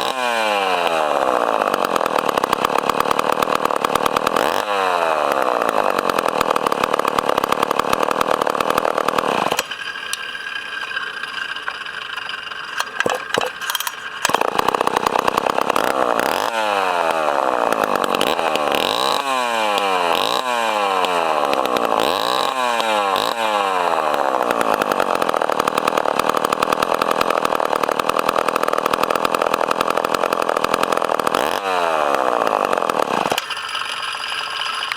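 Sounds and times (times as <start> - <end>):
chainsaw engine revving: 0.0 - 34.9.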